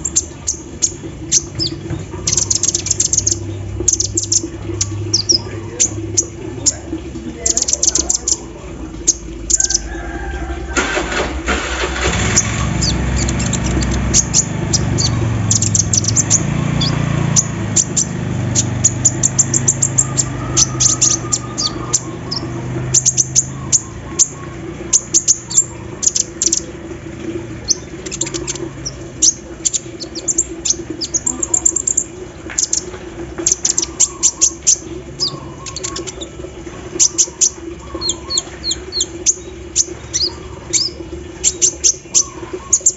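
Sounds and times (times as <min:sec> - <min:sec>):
bird singing high chirps: 0:00.0 - 0:08.4, 0:12.3 - 0:26.7, 0:27.6 - 0:36.4, 0:37.0 - 0:42.9
low steady hum: 0:00.0 - 0:42.9.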